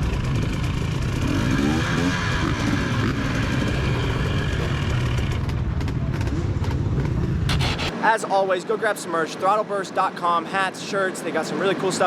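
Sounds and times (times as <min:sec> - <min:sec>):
two-stroke motocross bike engine revving: 0:00.0 - 0:06.4.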